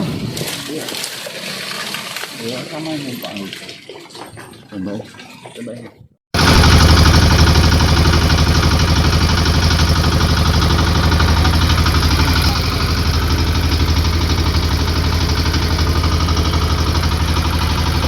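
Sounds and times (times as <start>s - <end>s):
engine running with pulsing beat: 6.4s - 18.0s.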